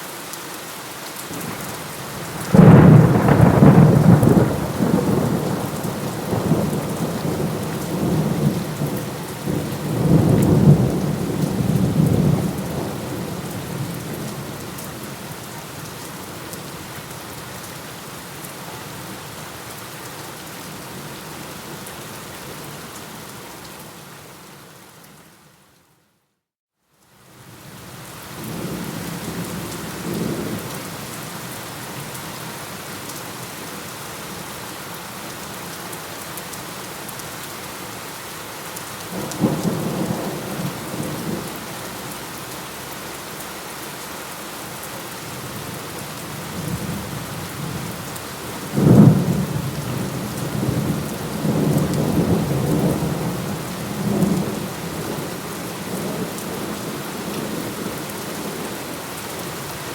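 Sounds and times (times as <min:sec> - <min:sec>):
steady rain: 0:00.0 - 0:59.9
thunder rumbling: 0:02.3 - 0:14.0, 0:46.6 - 0:57.9
sharp loud thunderclap: 0:02.5 - 0:05.7.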